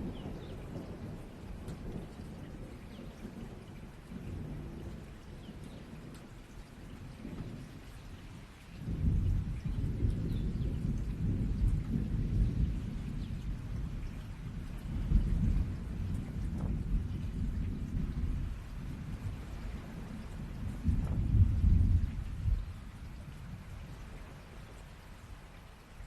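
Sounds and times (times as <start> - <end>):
steady rain: 0.0 - 26.0
rolling thunder: 8.8 - 24.8.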